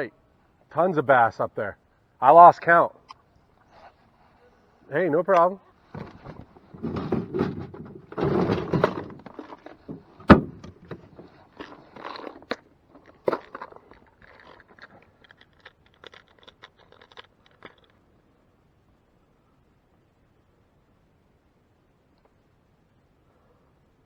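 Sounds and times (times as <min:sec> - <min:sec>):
handling noise knocks and scrapes: 0:05.3 - 0:17.9.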